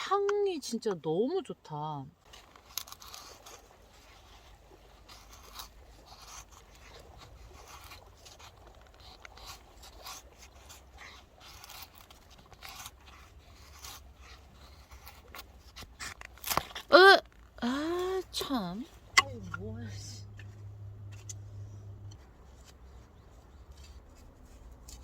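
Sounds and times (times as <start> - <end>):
firewood and knife handled: 2.2 - 25.0.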